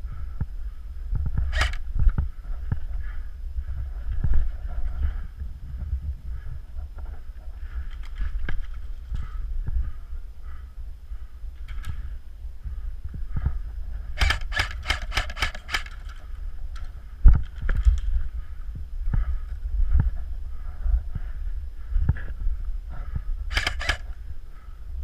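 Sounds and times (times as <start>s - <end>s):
steady low rumble: 0.0s - 25.0s
airsoft gun firing burst: 1.5s - 1.8s, 14.2s - 16.1s, 23.5s - 24.1s.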